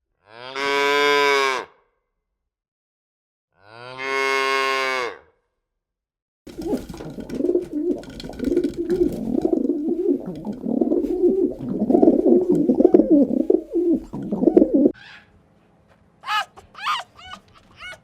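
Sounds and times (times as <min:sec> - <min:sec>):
pigeons cooing: 0:06.5 - 0:15.0.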